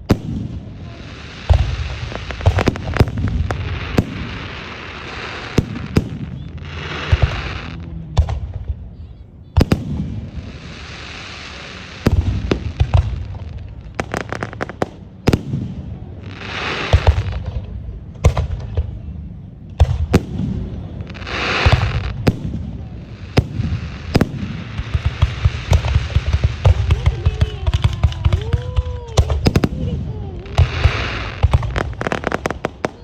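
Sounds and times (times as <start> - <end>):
fireworks bangs and pops: 0.0 - 33.0.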